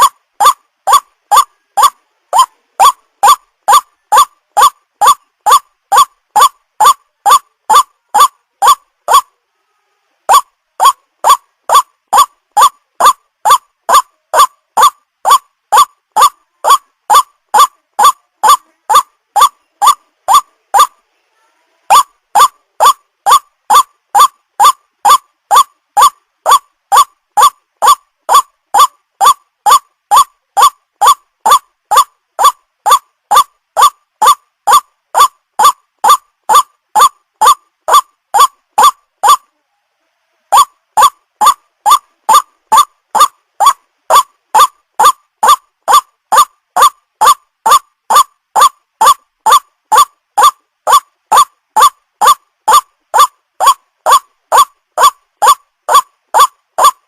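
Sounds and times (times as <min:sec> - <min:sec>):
waterhen calling: 0:00.0 - 0:09.3, 0:10.3 - 0:20.9, 0:21.9 - 0:39.4.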